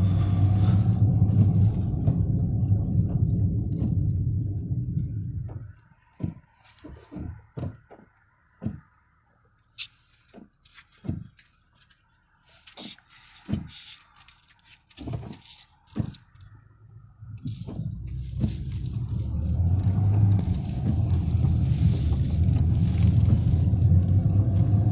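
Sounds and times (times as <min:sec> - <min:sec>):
rain drops thumping: 0:00.2 - 0:08.8, 0:17.4 - 0:24.9.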